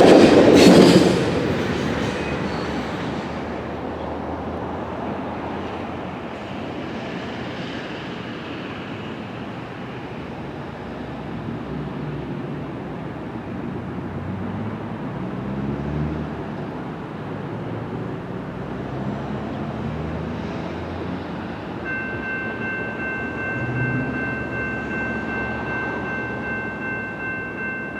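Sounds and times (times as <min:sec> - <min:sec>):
train rumble: 0:00.0 - 0:14.3, 0:20.3 - 0:27.9.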